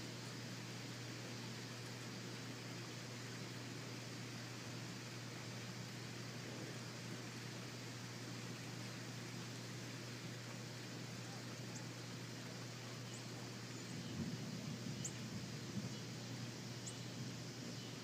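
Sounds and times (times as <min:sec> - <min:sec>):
steady hiss: 0:00.0 - 0:18.0
faint bird chirps: 0:16.8 - 0:18.0.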